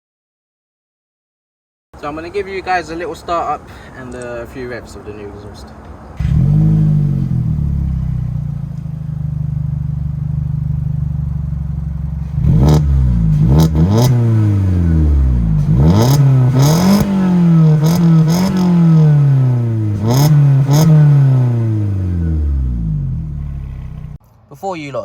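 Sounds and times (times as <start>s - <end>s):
car engine idling: 5.8s - 24.2s
engine revving: 6.2s - 24.2s
exhaust cracks: 6.2s - 24.2s.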